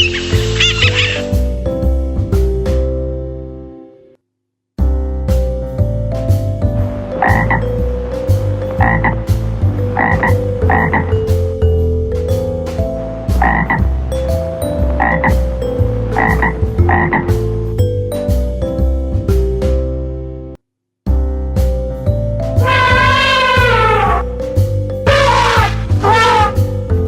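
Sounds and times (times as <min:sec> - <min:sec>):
frog croaking: 0:00.0 - 0:01.3, 0:07.1 - 0:11.3, 0:13.3 - 0:14.2, 0:14.8 - 0:17.4, 0:22.6 - 0:24.4, 0:25.1 - 0:26.7
light background music: 0:00.0 - 0:04.1, 0:04.8 - 0:20.6, 0:21.2 - 0:27.0.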